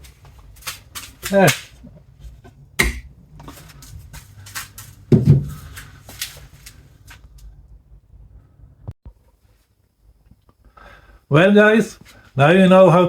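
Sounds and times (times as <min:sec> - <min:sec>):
dull thump: 0:02.8 - 0:03.1, 0:05.1 - 0:05.6.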